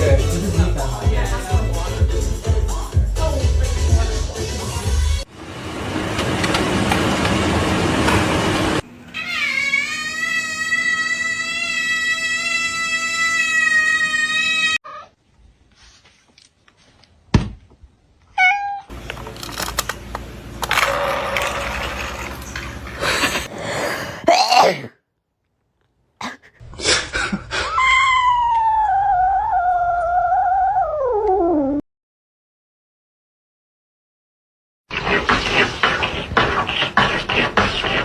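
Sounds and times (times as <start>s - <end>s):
cat meowing: 9.1s - 15.1s, 18.4s - 18.9s.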